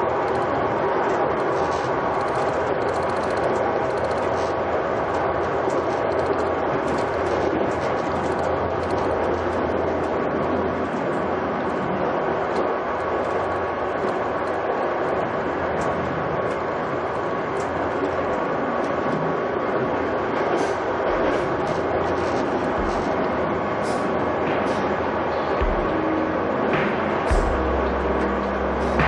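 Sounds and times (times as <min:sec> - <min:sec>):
train rumble inside carriage: 0:00.0 - 0:29.0
low hum: 0:20.9 - 0:29.0.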